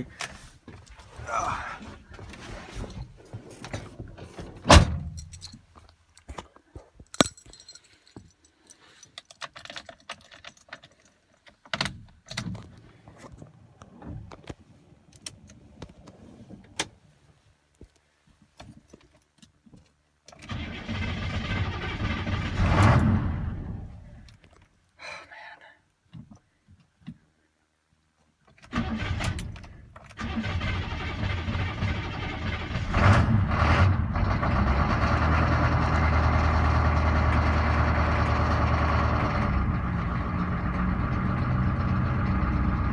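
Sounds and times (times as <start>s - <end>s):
keys jangling: 5.1s - 5.7s, 7.1s - 11.4s
diesel engine cranking on starter: 20.4s - 24.0s, 28.7s - 42.9s.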